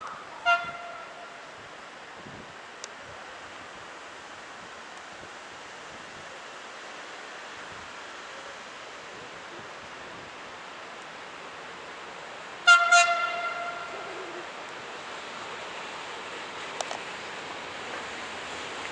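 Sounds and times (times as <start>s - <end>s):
wind hiss: 0.0s - 18.9s
train horn blasts: 0.4s - 1.5s, 12.6s - 14.1s.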